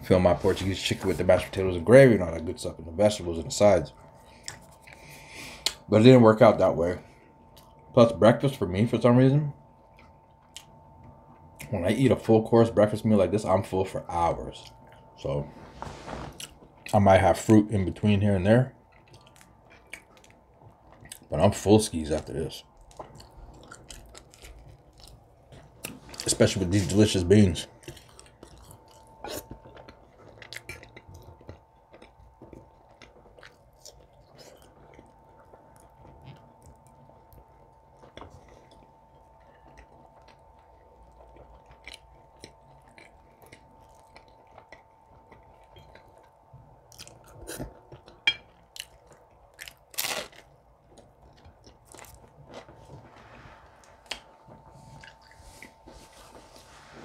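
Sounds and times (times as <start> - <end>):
person chewing food: 4.0 - 5.8, 7.2 - 7.9, 9.7 - 11.7, 14.5 - 15.1, 15.8 - 17.4, 18.8 - 57.0.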